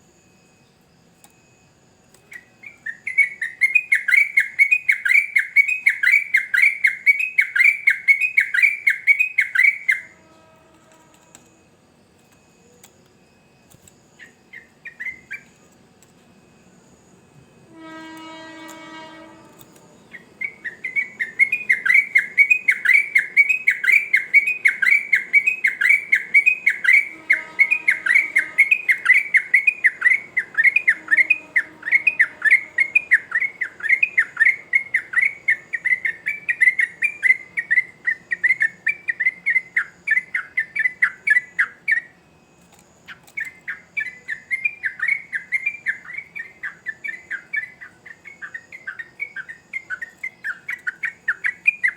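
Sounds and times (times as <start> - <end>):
bulbul rolling chirping song: 1.8 - 11.5, 12.4 - 51.9.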